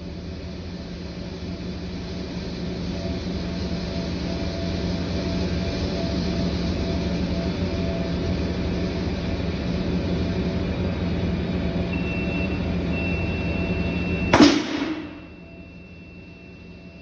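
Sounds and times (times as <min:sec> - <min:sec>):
mechanical running noise with hum: 0:00.0 - 0:17.0
circuit breaker bang: 0:14.4 - 0:15.5.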